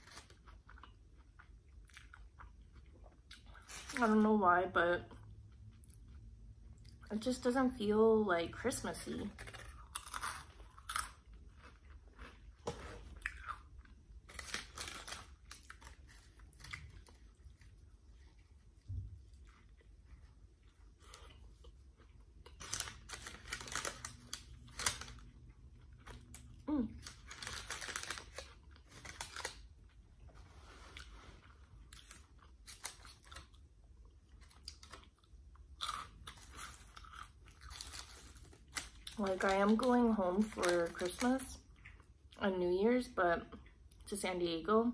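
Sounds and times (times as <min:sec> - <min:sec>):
crunchy snack chewing: 0:09.3 - 0:17.9, 0:20.6 - 0:30.0, 0:31.7 - 0:42.1.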